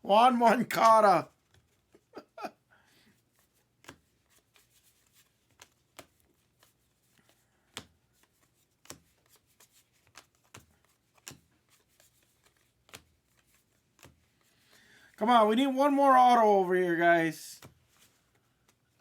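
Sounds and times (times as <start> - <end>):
cards rustling: 0.4 - 2.1, 3.1 - 19.0
sharp card clicks: 10.0 - 13.2.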